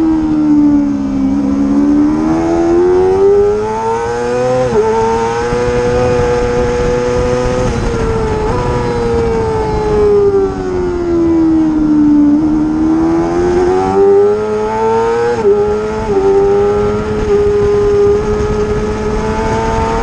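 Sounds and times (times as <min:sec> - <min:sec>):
racing motorcycle engine revving: 0:00.0 - 0:20.0.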